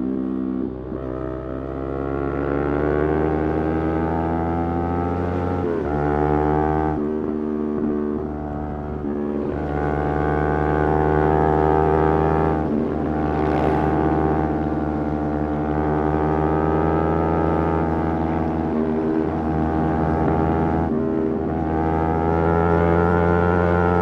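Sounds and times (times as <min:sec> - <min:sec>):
motorcycle engine running: 0:05.5 - 0:24.0.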